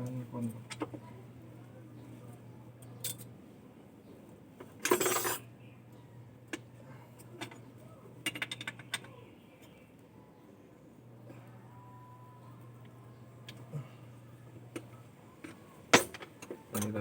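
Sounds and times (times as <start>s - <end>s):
steady low hum: 0.0s - 17.0s
metal tools clinking: 3.0s - 3.3s, 4.8s - 5.5s, 15.9s - 17.0s
metal parts clattering: 4.8s - 5.4s.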